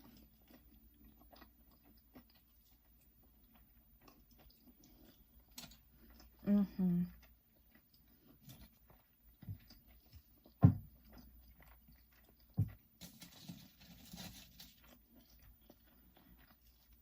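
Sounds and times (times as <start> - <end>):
close-up chewing: 0.0 - 17.0
rustling: 13.0 - 15.0.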